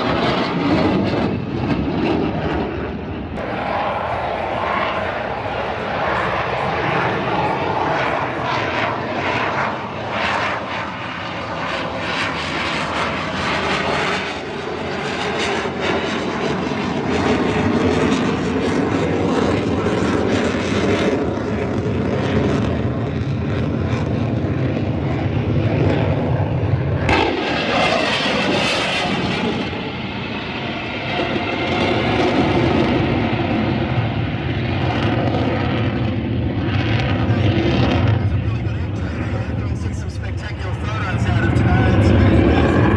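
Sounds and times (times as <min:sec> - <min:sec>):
aircraft engine noise: 0:00.0 - 0:42.9.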